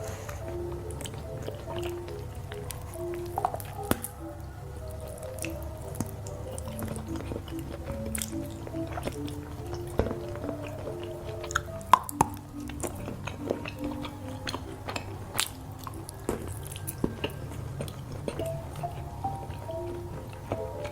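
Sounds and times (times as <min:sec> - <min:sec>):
chewing chocolate: 0:00.0 - 0:20.9
soft background music: 0:00.0 - 0:20.9
wet mouth clicks: 0:04.8 - 0:20.9.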